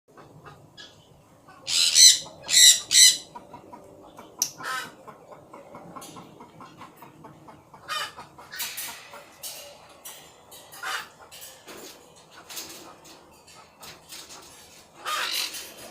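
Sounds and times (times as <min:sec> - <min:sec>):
parrots squawking: 0:00.7 - 0:03.4, 0:15.0 - 0:15.9.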